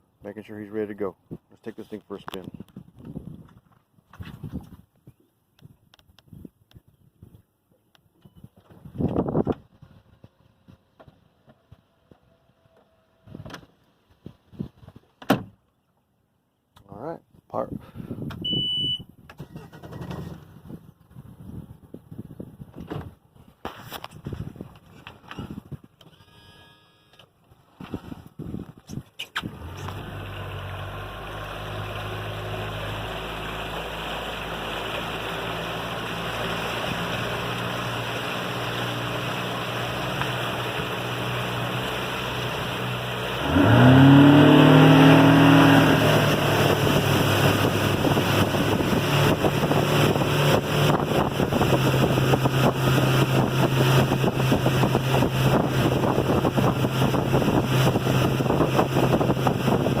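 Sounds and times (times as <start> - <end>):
wind and water rushing: 29.4 - 60.0
outboard engine running: 29.5 - 60.0.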